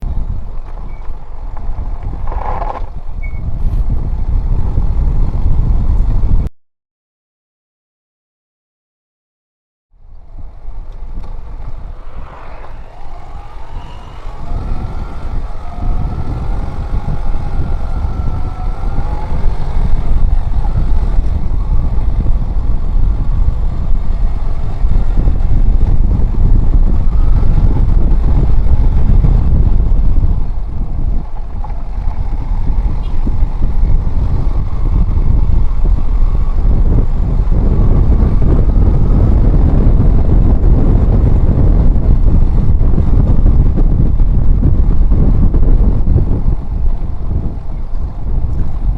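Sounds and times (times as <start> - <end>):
motorcycle engine: 0.0 - 6.4, 10.0 - 48.9
wind rumble on microphone: 0.0 - 6.5, 10.0 - 48.9.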